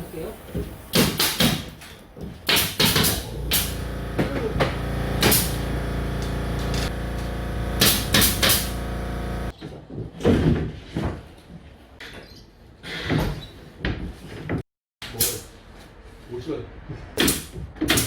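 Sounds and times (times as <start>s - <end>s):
motor hum: 3.1s - 9.5s.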